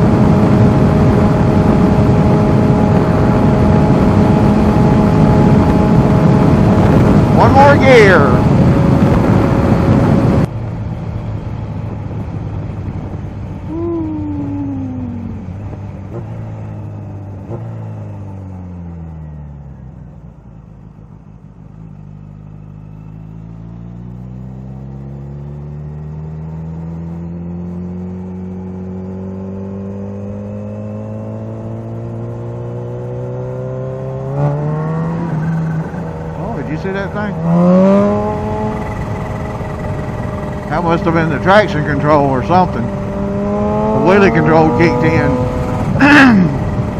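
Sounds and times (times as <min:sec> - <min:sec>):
wind noise: 0:00.0 - 0:17.4
motorcycle engine: 0:00.0 - 0:46.9.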